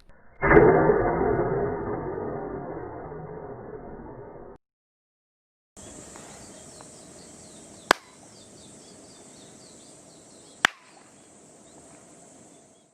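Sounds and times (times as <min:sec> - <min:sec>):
steady background hiss: 0:05.8 - 0:12.9
sharp loud claps: 0:07.9 - 0:08.2, 0:10.6 - 0:11.0.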